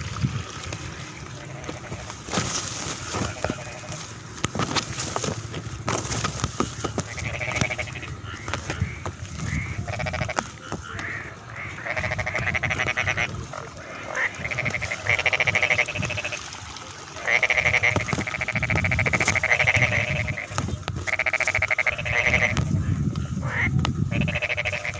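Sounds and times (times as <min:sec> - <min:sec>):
frogs croaking: 0:00.0 - 0:24.9.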